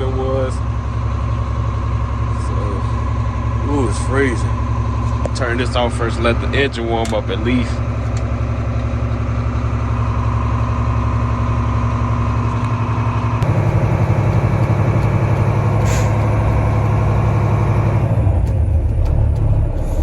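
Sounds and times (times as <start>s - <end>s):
diesel engine idling: 0.0s - 20.0s
air compressor running: 13.4s - 20.0s
short air hiss: 15.8s - 16.2s.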